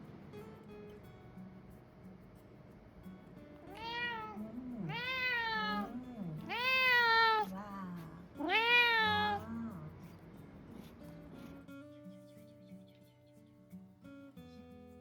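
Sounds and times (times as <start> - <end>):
cat meowing: 3.6 - 7.5, 8.4 - 9.5.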